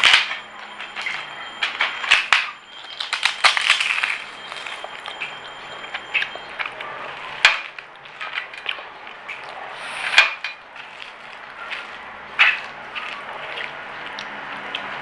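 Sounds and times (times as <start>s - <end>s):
chewing crispy fried food: 2.8s - 9.9s, 10.6s - 15.0s.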